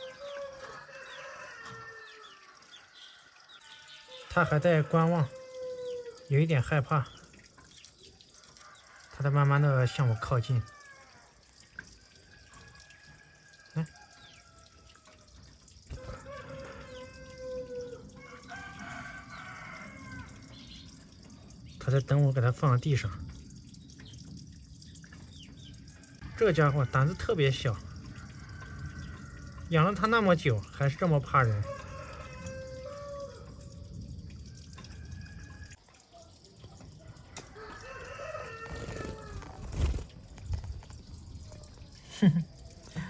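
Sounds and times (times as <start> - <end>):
rooster crowing: 0.0 - 6.3, 8.5 - 11.4, 12.3 - 15.2, 15.9 - 20.5, 25.8 - 27.4, 28.1 - 29.8, 31.4 - 35.8, 37.0 - 40.0
faint water dripping: 0.0 - 43.0.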